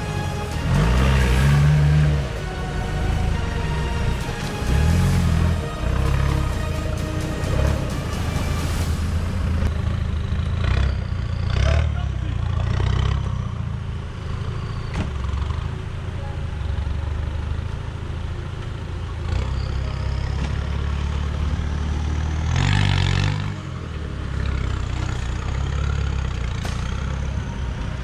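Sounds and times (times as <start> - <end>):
engine running under load: 0.0 - 28.0.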